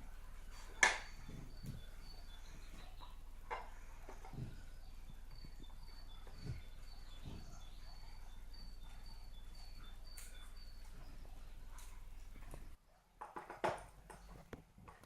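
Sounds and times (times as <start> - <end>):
steady low hum: 0.0 - 12.8
soft clicks and rustles: 0.0 - 15.0.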